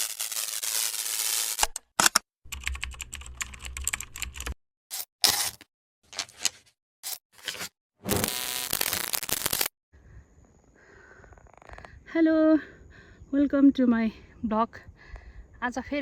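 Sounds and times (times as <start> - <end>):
rapid keyboard-like clicking: 2.0 - 4.6.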